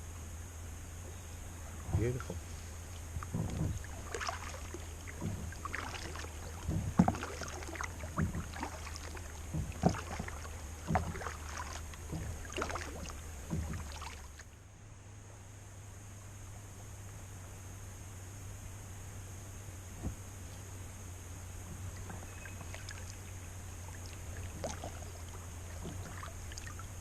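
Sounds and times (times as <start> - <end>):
steady low hum: 0.0 - 27.0
paddle splashing in water: 1.8 - 14.5, 21.6 - 27.0.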